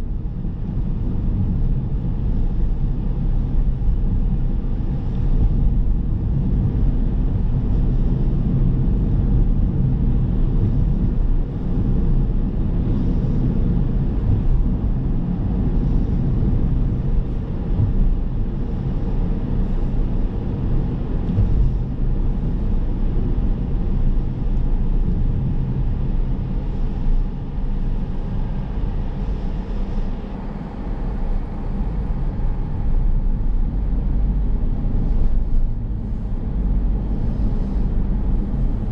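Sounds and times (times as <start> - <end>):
wind noise: 0.0 - 38.9
tyres rumbling on road: 25.8 - 38.9.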